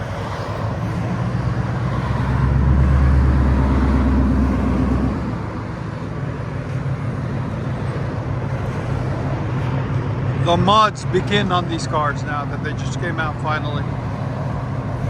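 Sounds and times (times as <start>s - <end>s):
car exhaust rumble: 0.0s - 15.0s.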